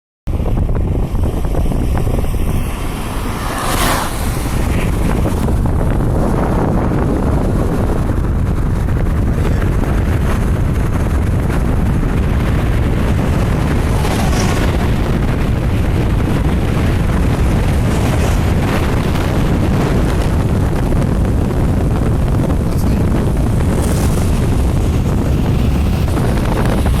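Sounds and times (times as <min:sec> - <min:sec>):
moving car running noise: 0:00.3 - 0:27.0
wind buffeting microphone: 0:00.3 - 0:27.0
hissing surges: 0:01.9 - 0:05.5.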